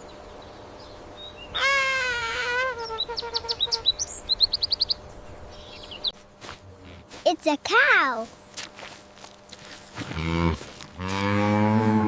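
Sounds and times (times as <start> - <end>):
bird calling: 1.2 - 6.2.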